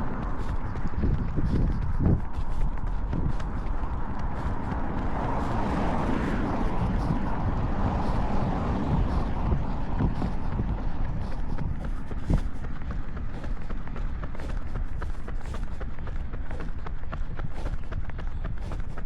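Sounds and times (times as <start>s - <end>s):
running footfalls: 0.0s - 19.0s
wind buffeting microphone: 0.0s - 19.0s.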